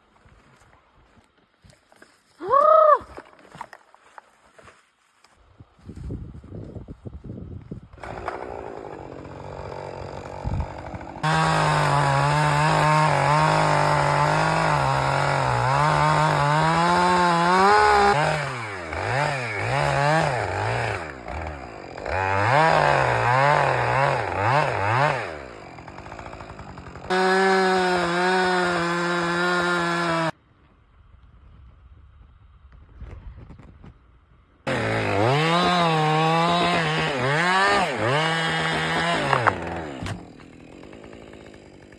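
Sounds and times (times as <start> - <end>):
chainsaw cutting through tree: 7.9 - 30.4, 34.7 - 41.9.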